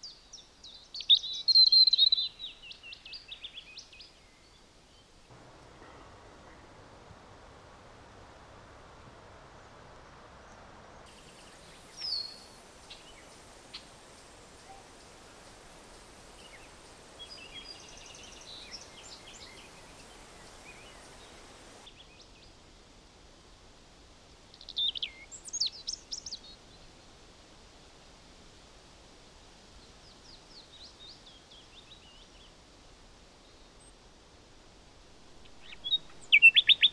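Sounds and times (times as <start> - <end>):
faint outdoor hiss: 0.0 - 36.9
wild birds calling: 11.1 - 21.9.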